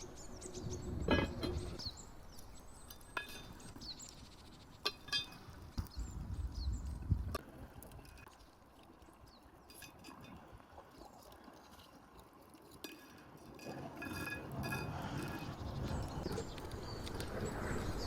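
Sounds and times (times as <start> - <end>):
outdoor background noise: 0.0 - 18.0
utensils clinking on dishes: 4.8 - 5.5.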